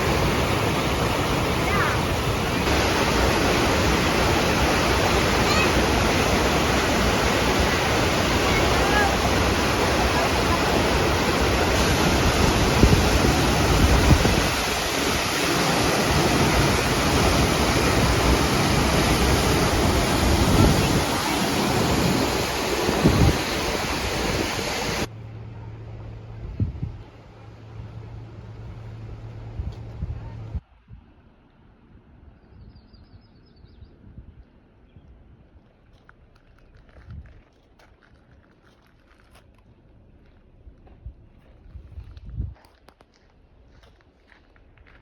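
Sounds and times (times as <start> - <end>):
water rushing past boat: 0.0 - 30.6
wind rushing: 10.9 - 25.1.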